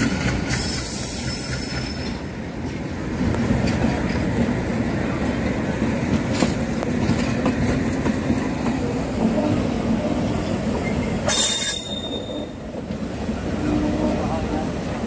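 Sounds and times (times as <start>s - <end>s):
train rumbling on rails: 0.0s - 15.0s
brief high screech: 11.3s - 12.6s.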